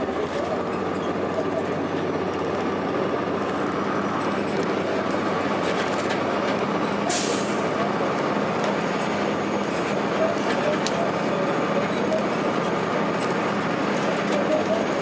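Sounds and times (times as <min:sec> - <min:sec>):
bus engine and road noise: 0:00.0 - 0:15.0
air brake hiss: 0:07.1 - 0:07.6.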